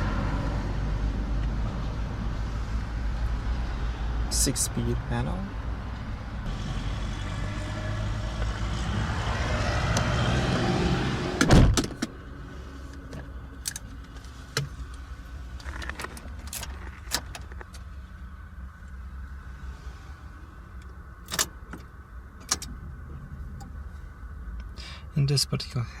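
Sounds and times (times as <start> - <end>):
car door thump: 11.4 - 12.1.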